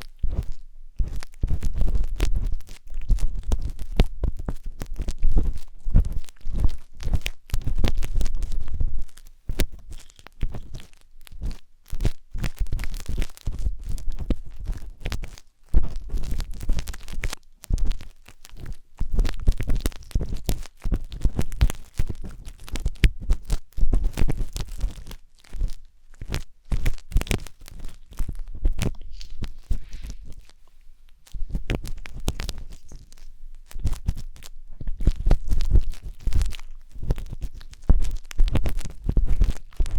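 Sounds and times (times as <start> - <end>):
skewer scraping microphone: 26.7 - 39.9.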